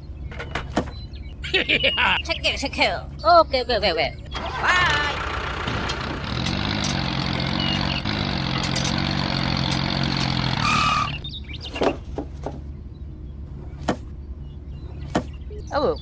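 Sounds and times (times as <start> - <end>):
motor running: 4.3 - 11.2
sharp knocks: 13.8 - 14.1, 15.0 - 15.4.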